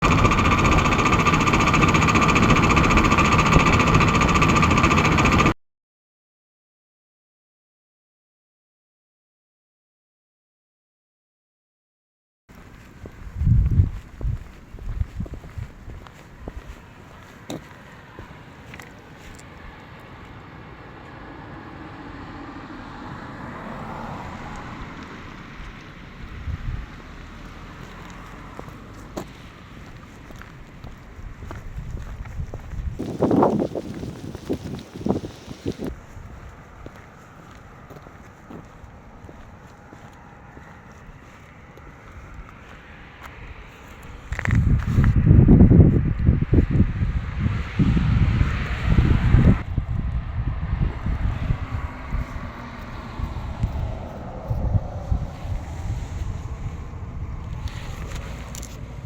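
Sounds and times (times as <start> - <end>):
mechanical running noise with rattle: 0.0 - 5.6, 31.9 - 36.0
car driving past: 19.5 - 29.6, 47.0 - 59.0.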